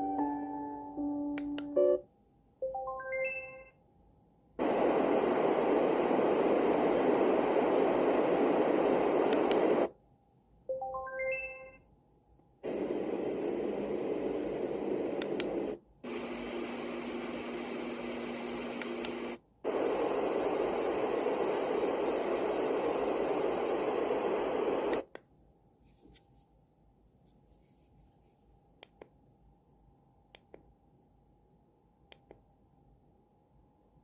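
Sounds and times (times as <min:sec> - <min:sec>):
white noise hiss: 0:04.6 - 0:10.0, 0:12.6 - 0:25.1.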